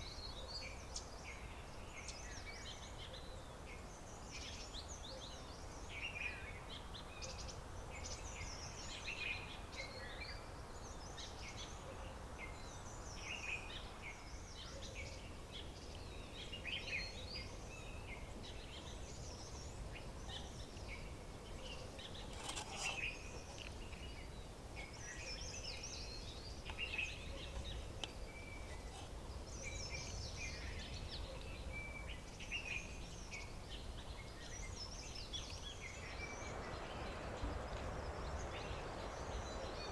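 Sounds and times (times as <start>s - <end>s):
low outdoor background noise: 0.0s - 39.9s.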